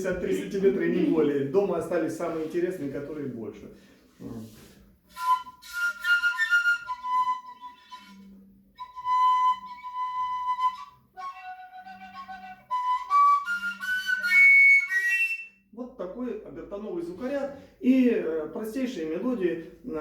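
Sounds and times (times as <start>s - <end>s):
breathy overtone flute notes: 5.1s - 15.6s.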